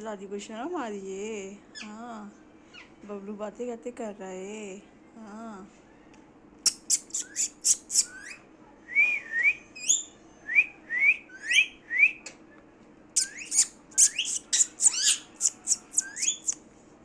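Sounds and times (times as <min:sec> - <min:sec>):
parrot chirping: 0:06.6 - 0:08.4, 0:13.2 - 0:16.6.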